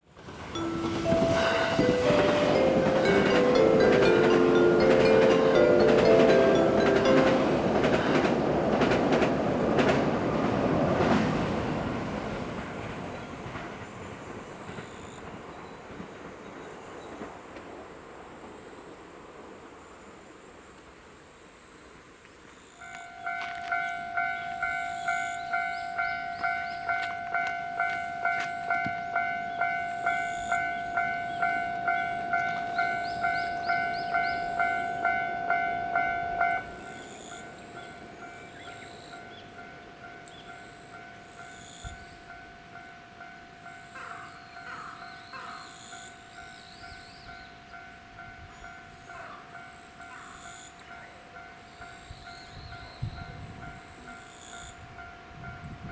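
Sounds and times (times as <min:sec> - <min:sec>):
level crossing bell ringing: 0:00.6 - 0:08.3, 0:22.9 - 0:45.3.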